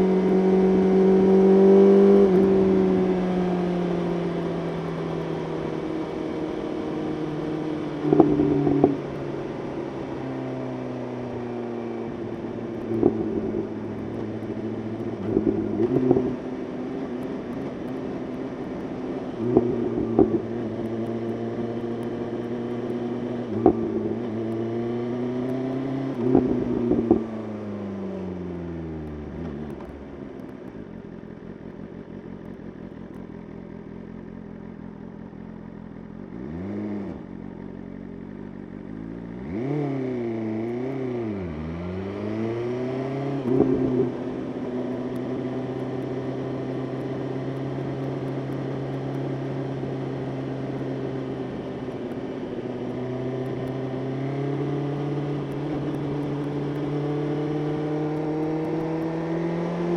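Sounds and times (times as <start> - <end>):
motorcycle engine revving: 0.0 - 31.6, 32.2 - 59.9.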